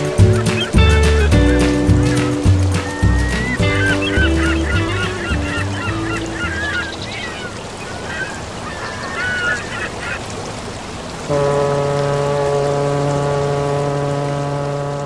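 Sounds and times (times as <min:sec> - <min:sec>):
music with held notes: 0:00.0 - 0:07.1
background music: 0:00.0 - 0:07.2
birds chirping: 0:00.0 - 0:10.8.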